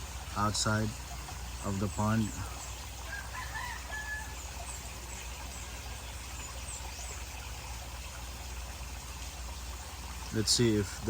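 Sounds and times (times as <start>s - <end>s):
low steady hum: 0.0s - 11.0s
water trickling from pipe: 0.0s - 11.0s.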